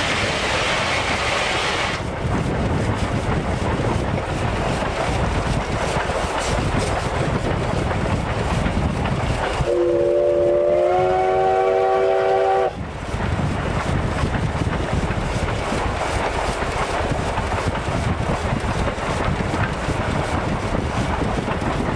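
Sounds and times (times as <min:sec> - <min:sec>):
train running rumble: 0:00.0 - 0:21.9
train whistle chord: 0:09.7 - 0:12.8.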